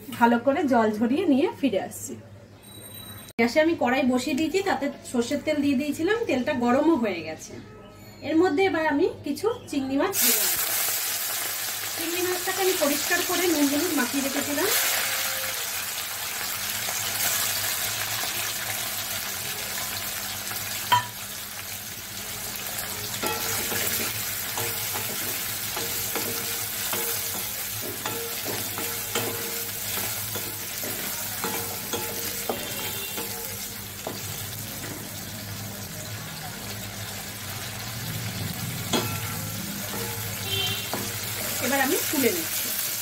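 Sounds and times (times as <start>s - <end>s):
prawns sizzling in oil: 10.1s - 43.0s.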